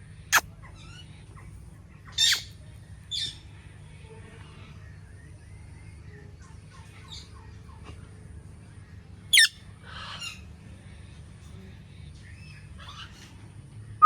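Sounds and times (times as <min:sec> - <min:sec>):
parakeet noisy call: 0:02.2 - 0:02.5, 0:09.3 - 0:10.4
faint bird chirps: 0:09.3 - 0:09.5.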